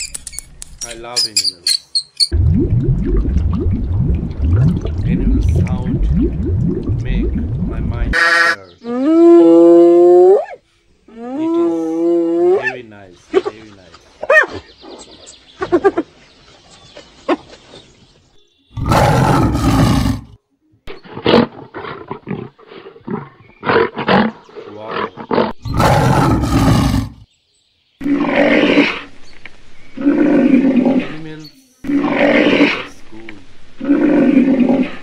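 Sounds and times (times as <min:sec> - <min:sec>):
lion grunting: 0:18.8 - 0:20.4, 0:21.0 - 0:27.2, 0:30.0 - 0:33.0
lion roaring: 0:18.8 - 0:20.4, 0:21.1 - 0:27.2, 0:28.0 - 0:29.1, 0:30.0 - 0:31.2, 0:31.8 - 0:33.0, 0:33.8 - 0:35.0.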